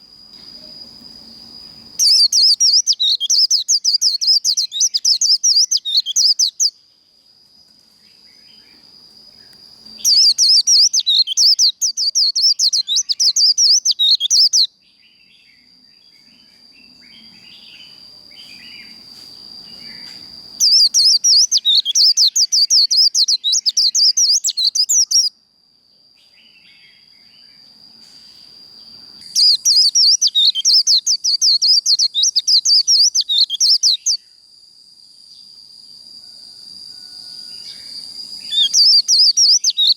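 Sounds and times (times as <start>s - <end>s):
high-pitched bird trill: 2.0s - 6.7s, 10.0s - 14.7s, 20.6s - 25.3s, 29.3s - 34.2s, 38.4s - 39.9s.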